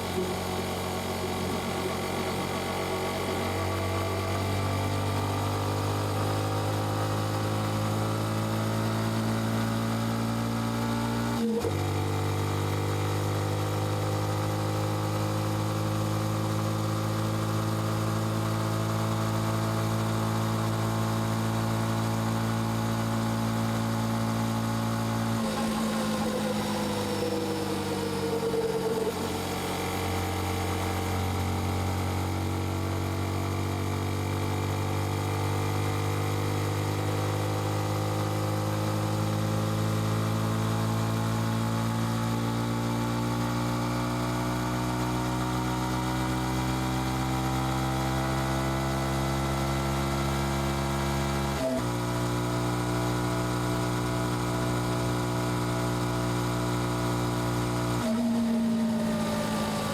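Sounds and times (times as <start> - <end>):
motorcycle engine exhaust: 24.7 - 33.9.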